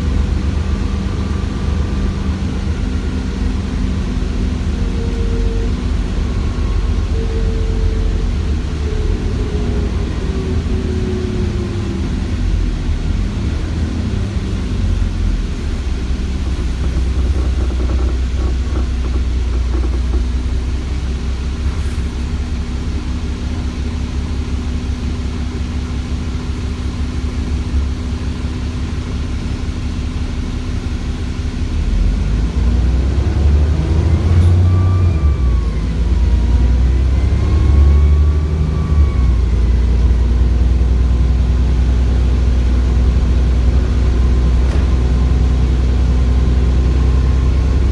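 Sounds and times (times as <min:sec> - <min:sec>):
bus diesel engine running: 0:00.0 - 0:47.9
turbo whine: 0:00.0 - 0:47.9.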